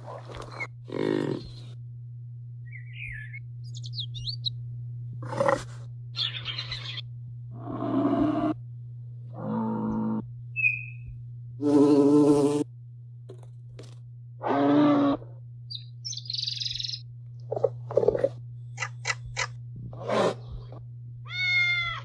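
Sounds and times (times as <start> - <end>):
steady low hum: 0.0 - 22.0
animal grunts and calls: 0.3 - 1.8, 5.2 - 8.6, 9.3 - 10.3, 11.6 - 12.7, 14.4 - 15.3, 17.5 - 20.8
warbling bird song: 2.6 - 4.6, 6.1 - 7.1, 10.5 - 11.2, 15.7 - 17.1, 18.6 - 19.6.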